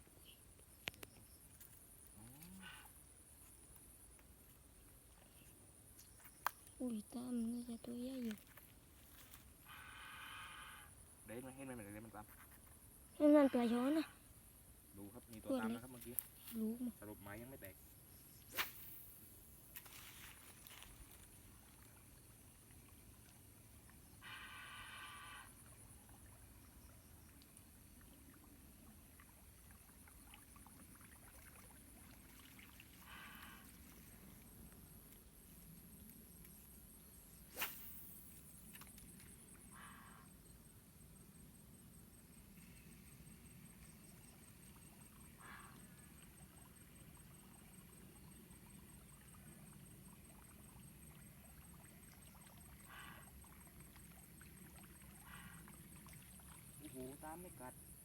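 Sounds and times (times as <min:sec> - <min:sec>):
faint ticks: 0:00.5 - 0:07.1
short hissing swishes: 0:18.4 - 0:19.2, 0:37.4 - 0:38.4.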